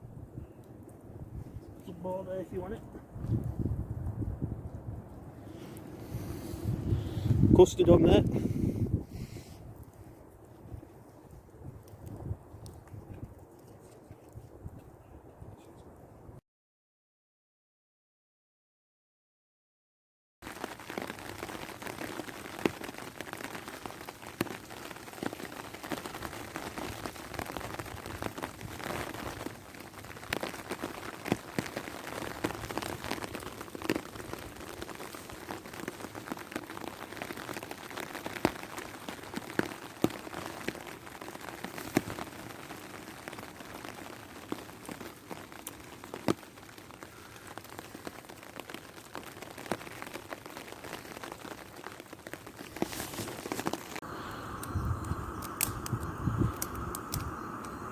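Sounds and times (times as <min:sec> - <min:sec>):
steady rain falling: 0:00.6 - 0:14.0, 0:20.4 - 0:57.9
sharp raindrop hits: 0:20.4 - 0:57.9.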